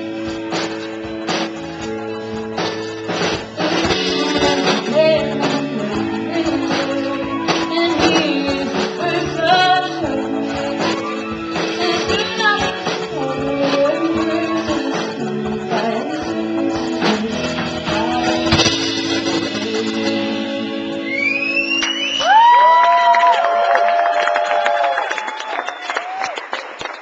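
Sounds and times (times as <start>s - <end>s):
live band with strummed guitar: 0.0s - 22.0s
woman singing: 3.6s - 21.0s.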